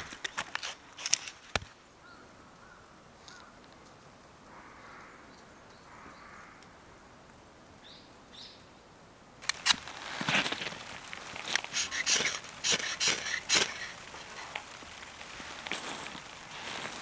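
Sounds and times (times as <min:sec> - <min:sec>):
distant bird calls: 0:09.4 - 0:17.0.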